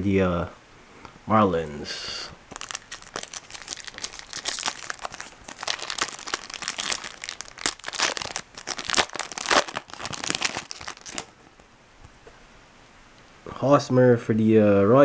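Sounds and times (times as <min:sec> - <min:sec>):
foil wrapper crinkling: 0:02.5 - 0:11.4.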